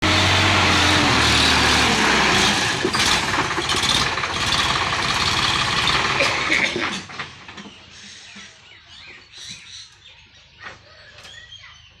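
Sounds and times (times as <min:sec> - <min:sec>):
loud rough noise: 0:00.0 - 0:07.6
tractor diesel engine running: 0:00.0 - 0:08.2.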